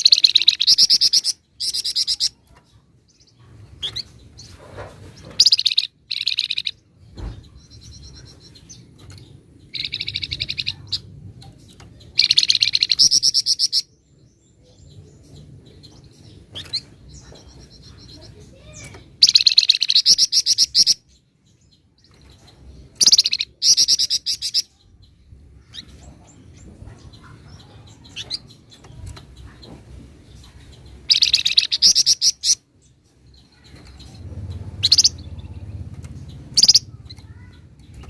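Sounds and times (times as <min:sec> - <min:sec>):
songbird rattling trills: 0:03.2 - 0:11.1, 0:16.3 - 0:21.0, 0:30.7 - 0:32.6, 0:33.2 - 0:38.0.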